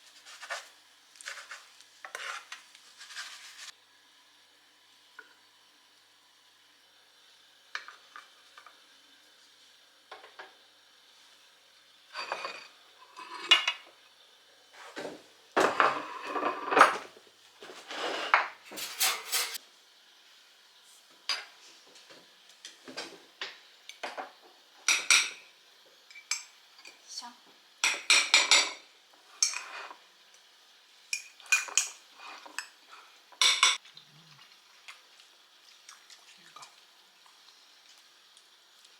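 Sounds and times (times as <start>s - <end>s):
dishes and cutlery clattering: 15.6s - 17.1s, 18.1s - 19.6s, 27.8s - 28.8s, 33.4s - 33.8s.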